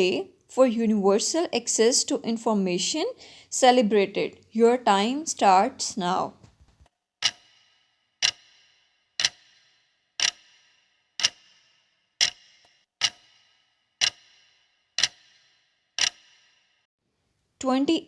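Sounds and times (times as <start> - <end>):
clock ticking with short ring: 7.2 - 16.6.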